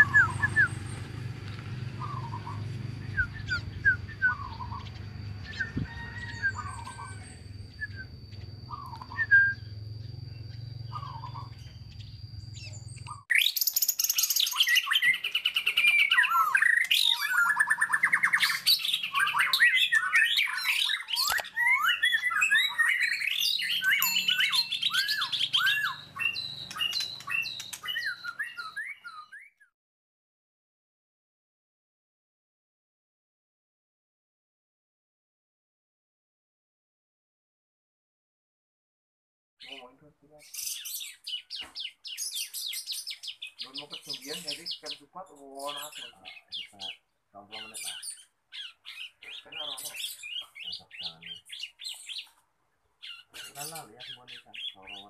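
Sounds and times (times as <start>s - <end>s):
low hum: 0.0s - 5.8s, 6.4s - 13.2s
fast bird song with trills: 0.0s - 29.7s, 39.6s - 55.0s
young bird chirping: 0.0s - 29.7s, 39.6s - 55.0s.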